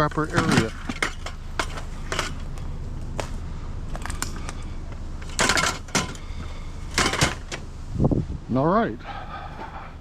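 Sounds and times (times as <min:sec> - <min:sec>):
scrap metal clanking: 0:00.0 - 0:02.6, 0:05.2 - 0:07.7
steady low hum: 0:00.0 - 0:10.0.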